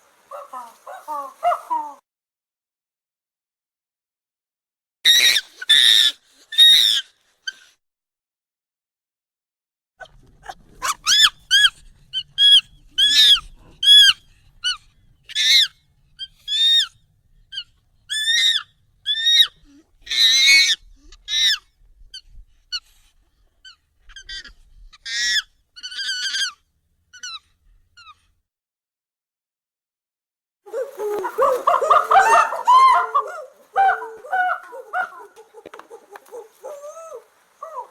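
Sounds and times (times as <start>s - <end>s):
monkey squealing high-pitched: 5.1s - 7.6s, 10.8s - 16.9s, 17.5s - 21.6s, 23.6s - 26.6s, 27.2s - 27.4s, 30.7s - 37.9s.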